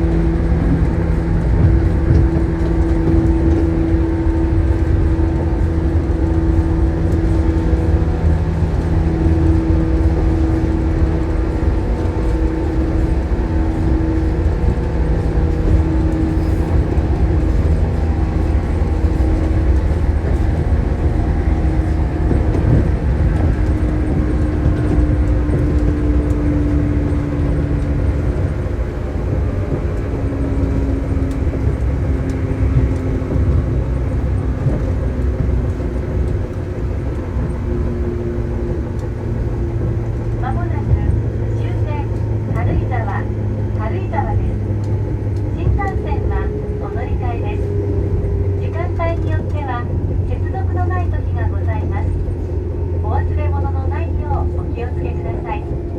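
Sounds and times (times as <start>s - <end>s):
traction motor hum: 0.0s - 55.9s
train wheels rumbling: 0.0s - 55.9s.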